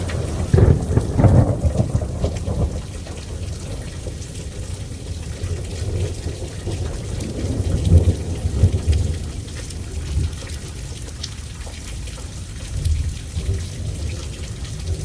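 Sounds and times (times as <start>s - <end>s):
thunder rumbling: 0.0s - 11.0s
steady rain: 0.0s - 15.0s.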